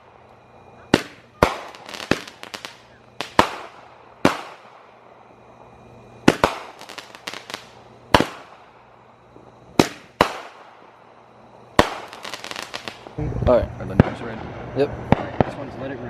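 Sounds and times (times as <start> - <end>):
small firework cracks: 0.0 - 5.1, 6.2 - 11.0, 11.7 - 13.2
fireworks bangs echoing: 0.8 - 5.1, 6.2 - 13.2, 13.9 - 15.8.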